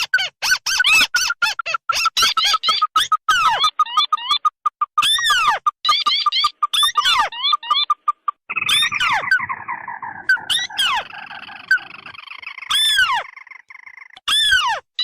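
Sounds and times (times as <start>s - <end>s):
crake calls: 2.0s - 14.7s
harsh churring trill: 5.0s - 14.2s
descending whistled bird notes: 8.5s - 14.6s.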